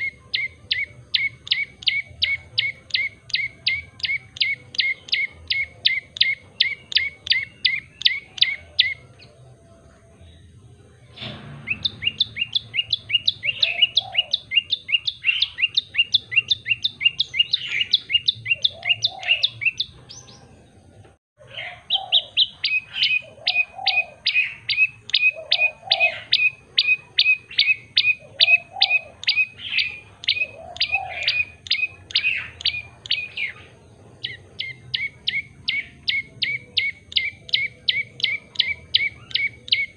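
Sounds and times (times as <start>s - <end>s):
faint low bird warbling: 0.0s - 20.8s
bird chirping: 0.0s - 39.9s.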